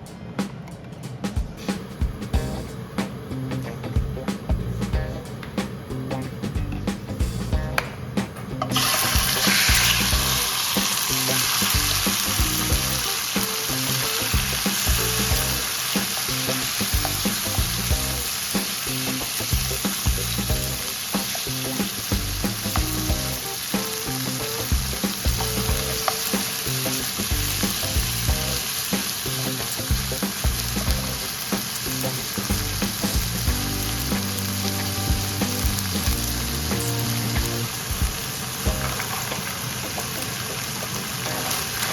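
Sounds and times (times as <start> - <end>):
background music with steady beat: 0.0 - 41.8
food sizzling in hot oil: 8.6 - 41.9.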